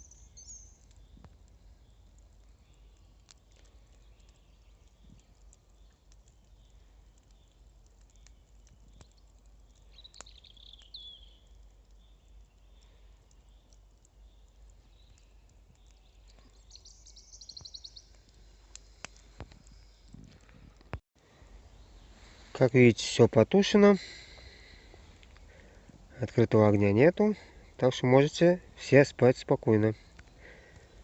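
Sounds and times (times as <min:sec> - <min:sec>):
bird chirping call: 0:00.0 - 0:01.2, 0:09.8 - 0:18.2
faint clicks: 0:02.2 - 0:16.6, 0:17.5 - 0:21.0, 0:24.3 - 0:25.7, 0:30.1 - 0:31.0.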